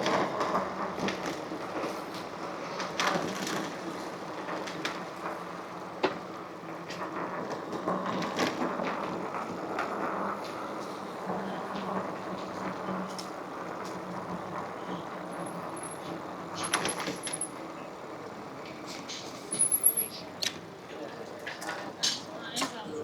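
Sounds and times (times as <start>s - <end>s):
rattles and clicks: 15.7s - 17.6s.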